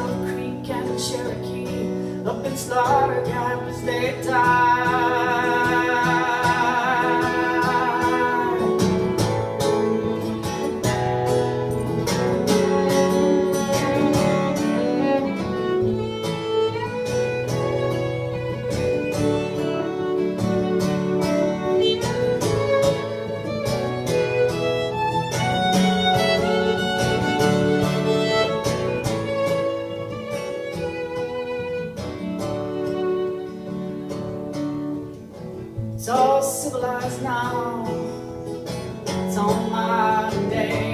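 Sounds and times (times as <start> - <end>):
strummed acoustic guitar: 0.0 - 40.9
violin playing melody: 3.0 - 35.2.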